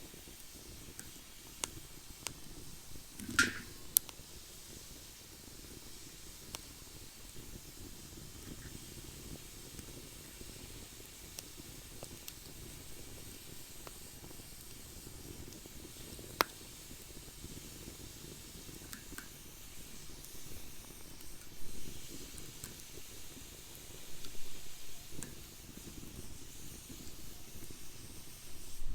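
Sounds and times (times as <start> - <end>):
fire crackling: 0.0 - 28.9
sharp pop of fire: 3.1 - 4.2, 14.6 - 23.0.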